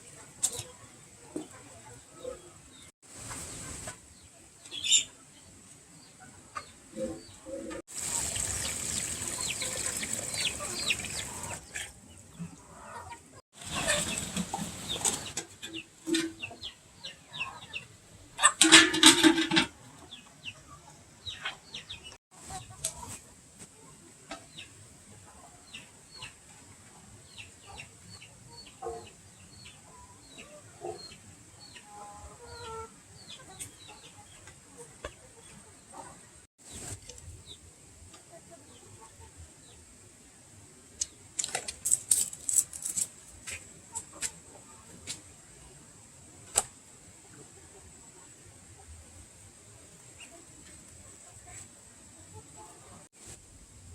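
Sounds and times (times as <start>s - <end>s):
chickens calling: 0.4s - 23.2s, 23.8s - 39.8s.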